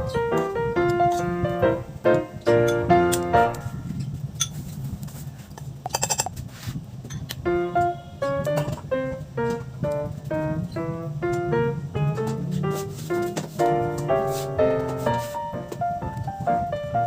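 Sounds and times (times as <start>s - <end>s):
piano music: 0.0s - 4.0s, 7.4s - 17.0s.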